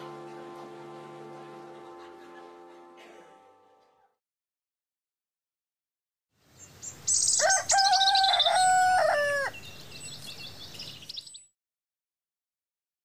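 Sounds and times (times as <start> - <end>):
birds chirping: 6.5 - 11.5.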